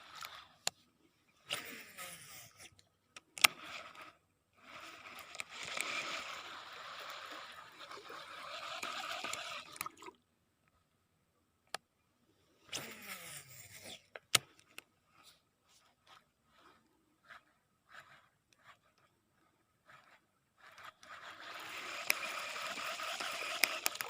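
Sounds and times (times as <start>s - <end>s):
fishing reel whirring: 0.0s - 0.6s, 1.5s - 2.7s, 3.4s - 10.0s, 12.7s - 13.9s, 16.5s - 18.9s, 19.8s - 24.0s
fishing reel spool spinning: 0.0s - 0.7s, 1.4s - 2.7s, 3.4s - 10.0s, 16.5s - 19.1s, 19.8s - 24.0s
sharp reel click: 4.8s - 7.6s, 8.4s - 9.7s, 19.9s - 24.0s.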